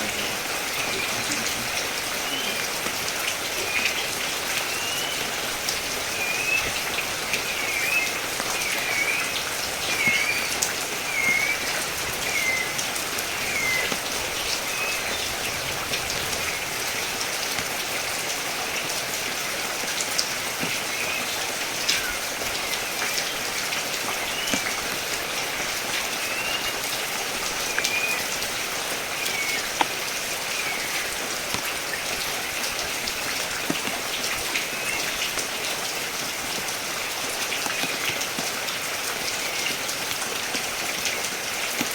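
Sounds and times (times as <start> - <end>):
rain pattering: 0.0 - 41.9
drops ticking close by: 0.1 - 38.6
bird chirping: 3.6 - 5.4, 6.0 - 17.4, 20.4 - 25.0, 26.1 - 26.9, 27.6 - 28.4, 29.1 - 31.2.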